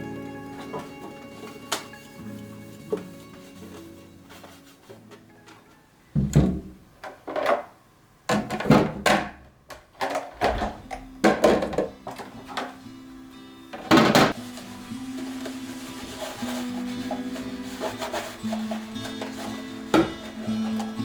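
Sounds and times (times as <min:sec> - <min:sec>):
soft background music: 0:00.0 - 0:06.5, 0:10.4 - 0:21.0
objects knocking and clunking: 0:04.3 - 0:12.8, 0:13.7 - 0:21.0.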